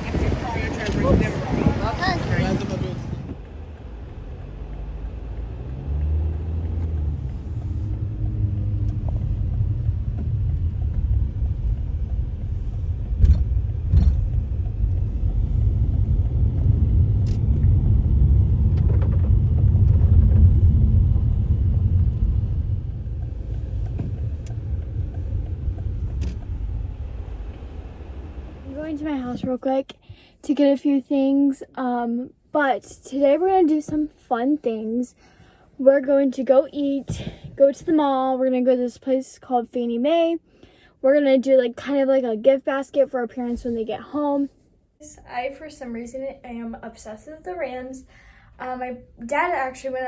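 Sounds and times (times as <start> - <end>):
road and engine rumble: 0.0 - 50.0
sharp clicks and knocks: 2.6 - 27.7.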